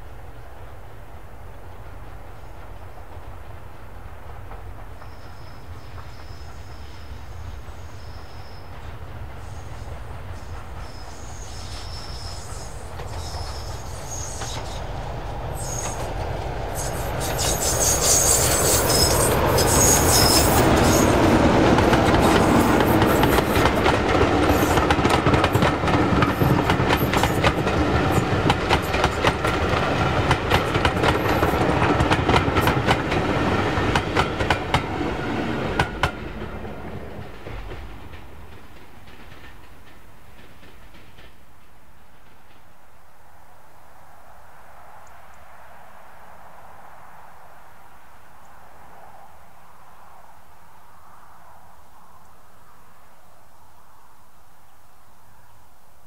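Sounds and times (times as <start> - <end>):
train wheels clattering: 15.6 - 42.8.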